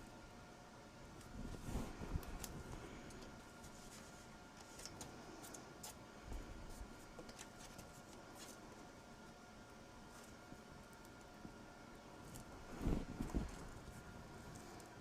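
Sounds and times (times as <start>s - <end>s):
low steady hum: 0.0s - 15.0s
paper and tape handling: 1.2s - 6.0s, 6.6s - 8.8s.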